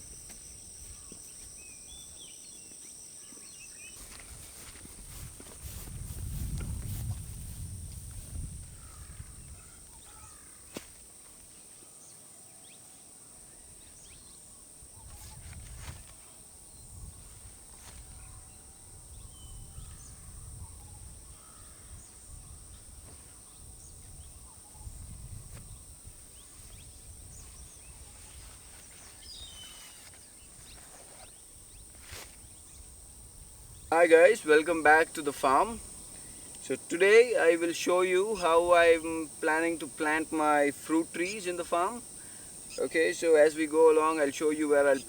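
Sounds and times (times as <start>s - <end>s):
birds chirping: 0.0s - 6.5s, 25.7s - 32.9s
high insect drone: 0.0s - 45.0s.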